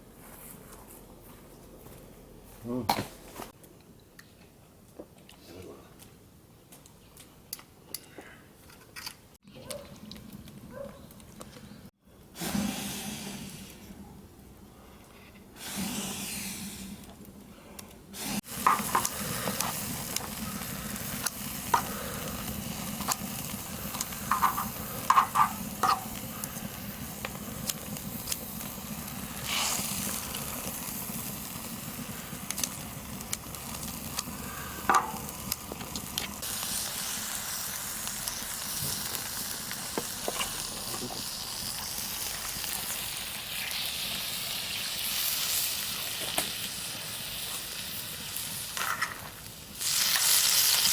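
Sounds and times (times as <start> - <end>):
food sizzling in fat: 18.1 - 50.9.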